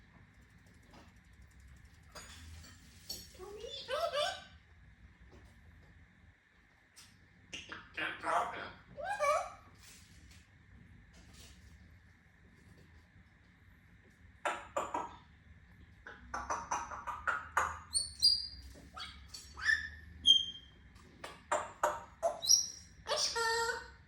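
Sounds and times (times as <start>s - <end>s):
parrot chattering and clicking: 14.4s - 15.2s, 16.0s - 23.5s.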